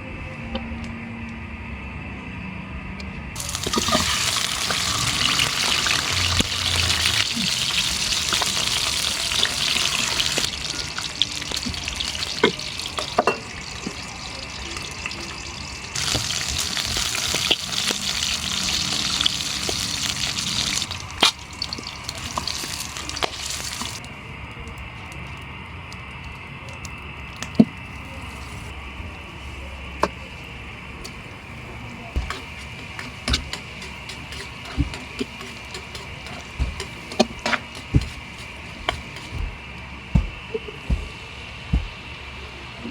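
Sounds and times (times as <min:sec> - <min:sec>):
tap water running into sink: 0:03.4 - 0:07.2, 0:07.9 - 0:15.3.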